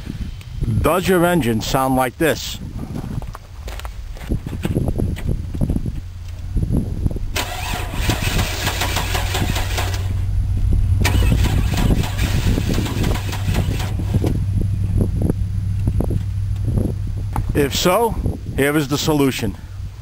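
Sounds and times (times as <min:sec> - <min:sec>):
car engine cranking: 0:07.2 - 0:17.5.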